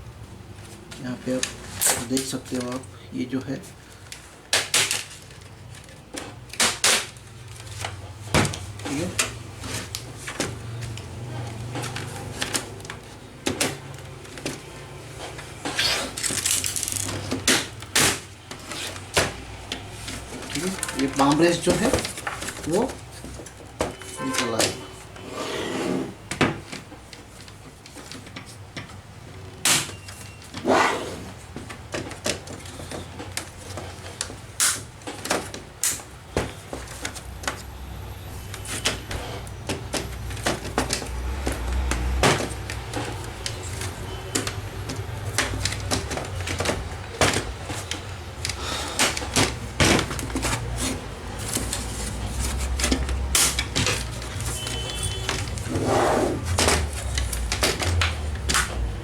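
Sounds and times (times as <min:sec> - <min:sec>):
plastic casing rubbing: 0:38.4 - 0:59.0.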